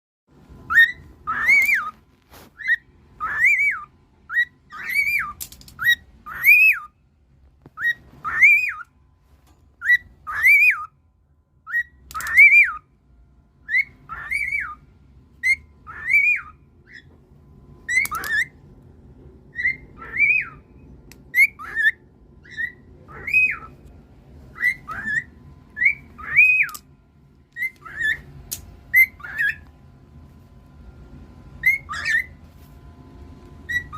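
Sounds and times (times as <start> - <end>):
cockatiel whistling: 0.6 - 7.0, 7.7 - 8.9, 9.8 - 11.0, 11.6 - 12.9, 13.6 - 17.2, 17.8 - 18.6, 19.5 - 23.9, 24.5 - 26.9, 27.5 - 29.7, 31.6 - 32.4, 33.6 - 33.9.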